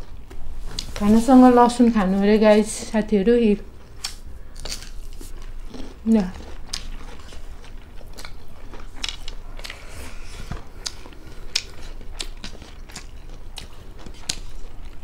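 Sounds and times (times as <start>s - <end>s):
people chewing: 0.0s - 1.1s, 3.8s - 15.0s
crisp crunches and mouth clicks: 3.9s - 15.0s.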